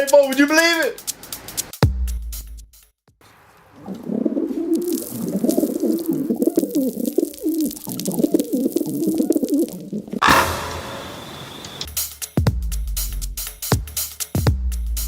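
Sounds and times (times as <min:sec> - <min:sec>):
pigeon-like cooing: 0:03.8 - 0:10.2.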